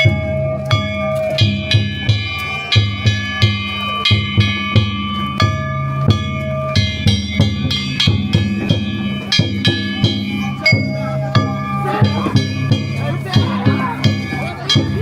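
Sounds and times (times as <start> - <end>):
metal gongs ringing: 0.0 - 15.0
taiko drum beating: 0.0 - 15.0.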